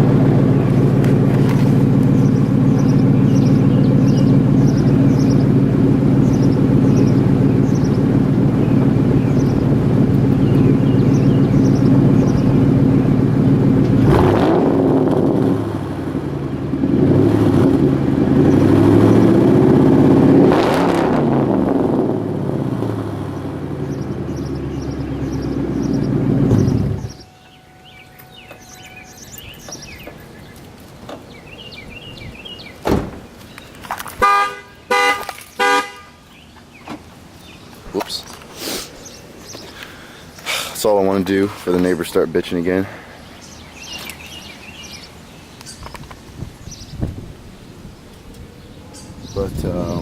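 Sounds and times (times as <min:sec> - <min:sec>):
car engine idling and revving: 0:00.0 - 0:50.0
thump: 0:32.8 - 0:33.3
car horn toots: 0:34.2 - 0:36.2.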